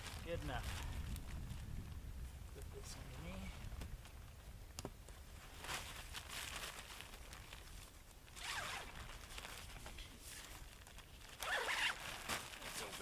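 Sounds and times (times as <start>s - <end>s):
tent fabric rustling: 0.0s - 1.7s, 5.3s - 13.0s
zipper swishes: 8.4s - 9.0s, 11.4s - 12.3s.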